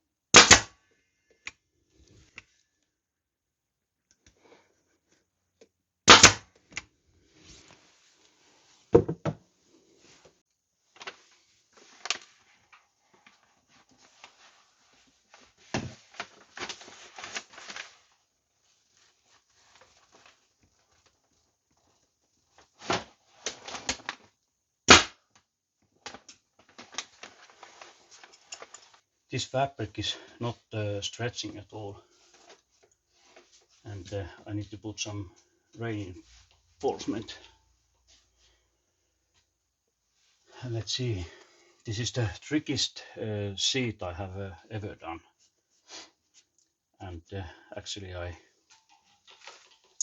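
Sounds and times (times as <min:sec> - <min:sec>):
fabric rustling: 0:07.2 - 0:09.0, 0:09.6 - 0:24.2, 0:25.8 - 0:29.1, 0:32.1 - 0:33.9.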